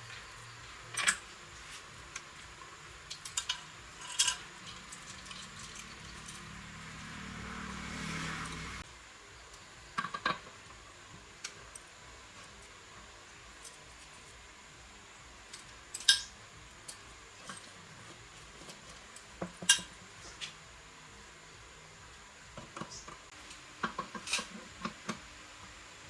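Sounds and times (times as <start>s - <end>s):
metal tools clinking and tapping: 0.0s - 2.3s, 3.1s - 6.8s, 15.6s - 20.5s.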